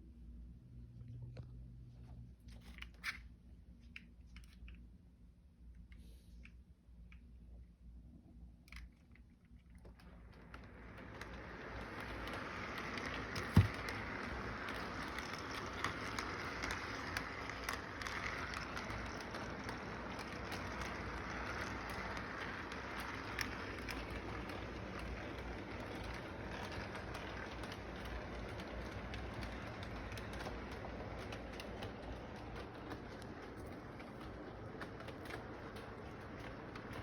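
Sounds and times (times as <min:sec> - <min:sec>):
model train running on track: 0:10.1 - 0:37.0.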